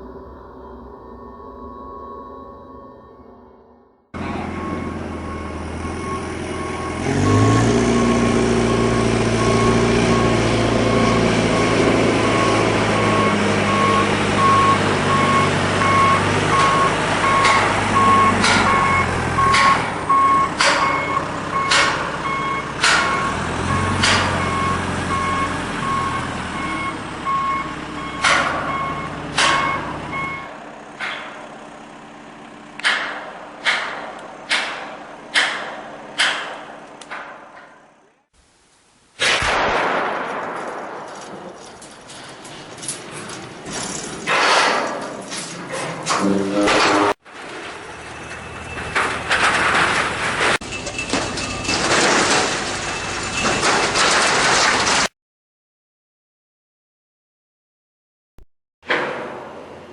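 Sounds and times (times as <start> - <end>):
reversing alarm beeping: 0.0 - 30.6, 47.8 - 49.4
heavy vehicle engine running: 4.2 - 38.3, 41.2 - 55.1
loud sharp bangs: 32.8 - 37.9, 39.2 - 42.1.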